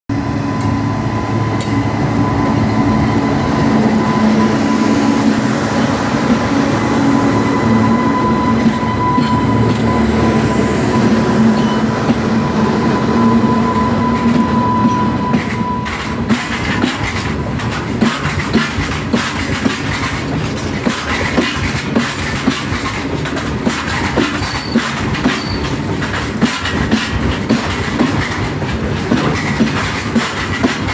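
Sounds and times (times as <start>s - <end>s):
electric locomotive humming and whining: 0.1s - 30.9s
wagon wheels clicking over rail joints: 14.1s - 30.9s.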